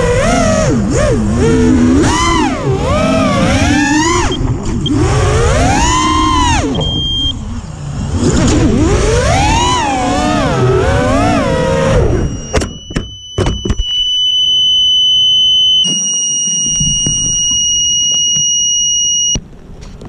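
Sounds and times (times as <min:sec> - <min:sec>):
drone motors whining: 0:00.0 - 0:19.4
high-pitched buzzer tone: 0:11.2 - 0:19.4.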